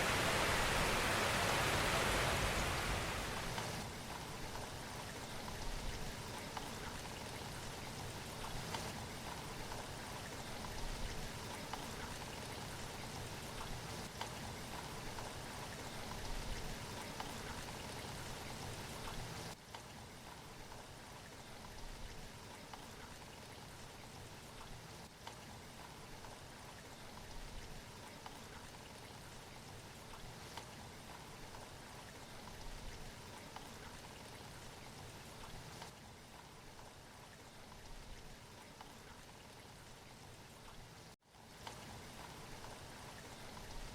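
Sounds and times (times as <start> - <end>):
sea water rushing and splashing: 0.0 - 3.8.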